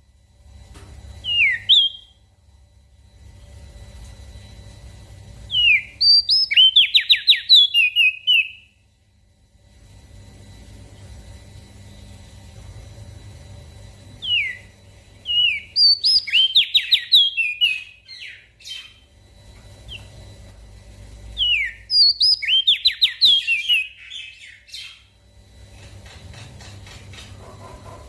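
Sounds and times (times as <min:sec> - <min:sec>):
faint low hum: 0:00.0 - 0:28.0
bird singing whistled notes: 0:01.2 - 0:02.2, 0:05.5 - 0:08.7, 0:14.2 - 0:19.0, 0:21.4 - 0:25.1.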